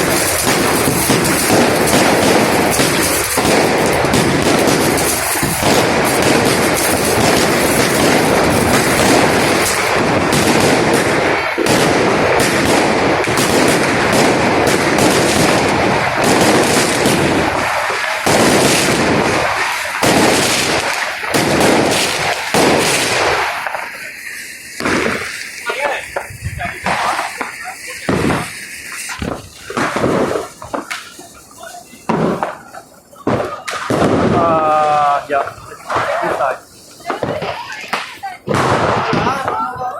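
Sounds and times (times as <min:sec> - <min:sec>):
fireworks and firecrackers banging: 0:00.0 - 0:39.9.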